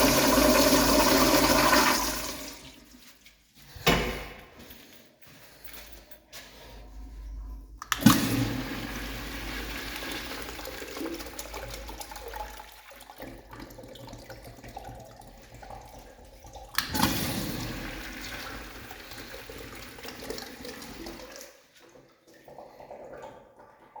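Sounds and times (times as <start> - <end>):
toilet flush valve rushing water: 0.0 - 2.8, 7.8 - 21.5.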